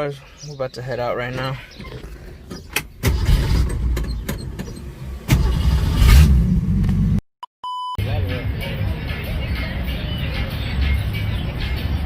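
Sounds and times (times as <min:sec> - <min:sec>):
ignition clicks: 0:01.8 - 0:05.8
car engine starting and revving: 0:01.8 - 0:07.2.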